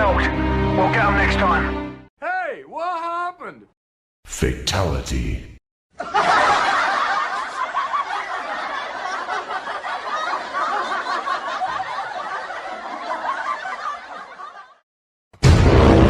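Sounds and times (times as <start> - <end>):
loud music: 0.0 - 2.1, 15.4 - 16.0
snickering and chuckling laughter: 6.0 - 14.8.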